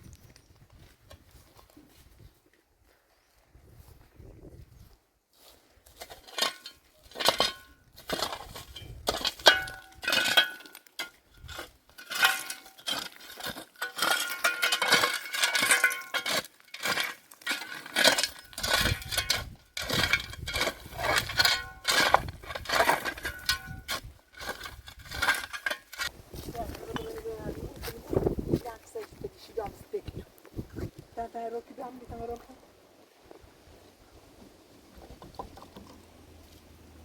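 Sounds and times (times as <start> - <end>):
hard objects clinking and knocking: 6.3 - 26.1.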